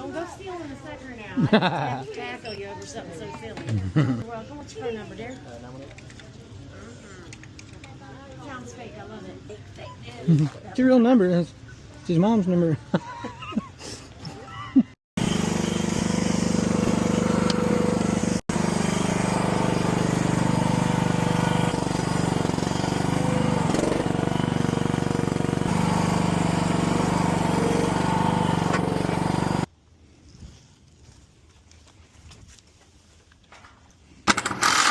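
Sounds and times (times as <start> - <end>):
engine running steadily: 15.2 - 29.7.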